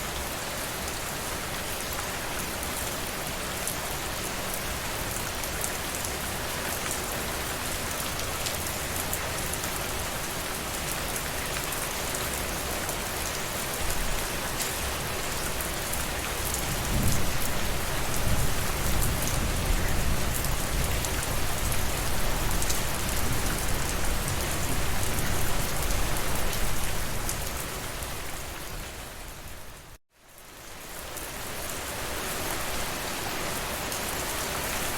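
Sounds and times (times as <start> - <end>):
steady rainfall: 0.0 - 34.9.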